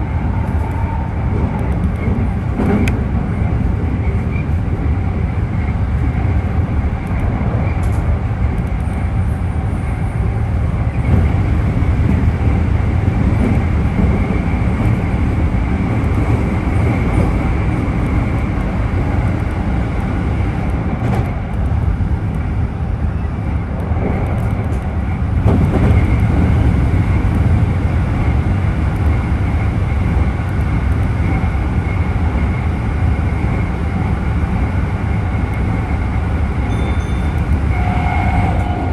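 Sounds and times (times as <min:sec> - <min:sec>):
low rumble under train floor: 0:00.0 - 0:38.9
train motor high whine: 0:36.7 - 0:38.9.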